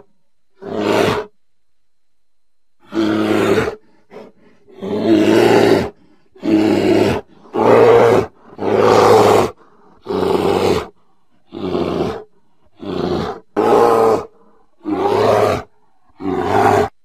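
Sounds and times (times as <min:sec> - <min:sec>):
bear roaring: 0:00.0 - 0:01.3, 0:02.8 - 0:17.0.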